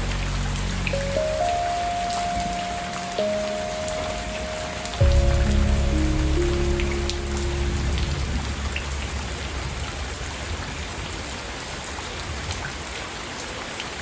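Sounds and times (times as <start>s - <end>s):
low sustained music chord: 0.0s - 10.2s
steady rain falling: 0.0s - 14.0s.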